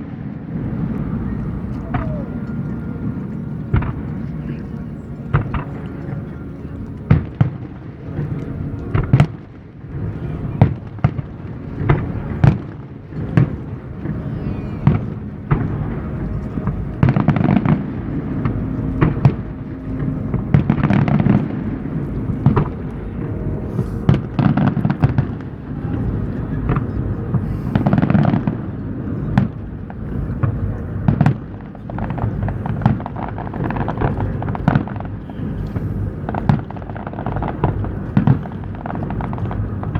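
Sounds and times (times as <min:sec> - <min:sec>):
continuous low rumble: 0:00.0 - 0:39.9.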